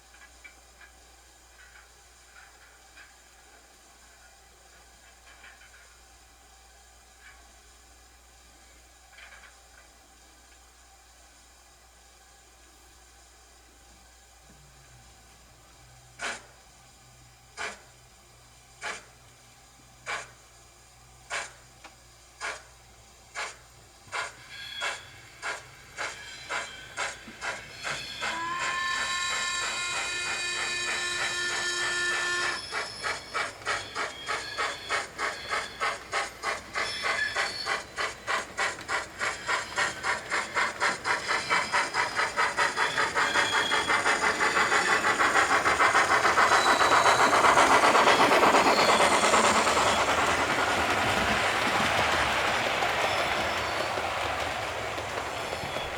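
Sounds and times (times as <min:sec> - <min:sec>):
steam locomotive exhaust chuffs: 0:00.0 - 0:55.9
steam whistle: 0:26.4 - 0:50.0.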